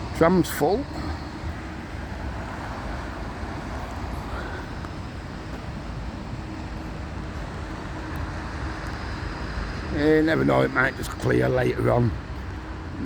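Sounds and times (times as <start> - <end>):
traffic rumble on wet street: 0.0 - 13.0.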